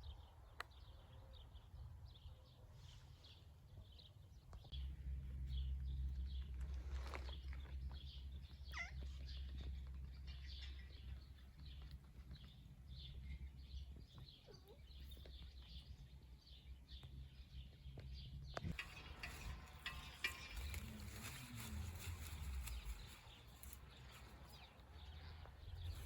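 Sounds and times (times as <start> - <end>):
small birds chirping: 0.0 - 26.0
low steady rumble: 4.5 - 26.0
rustling: 18.7 - 24.8.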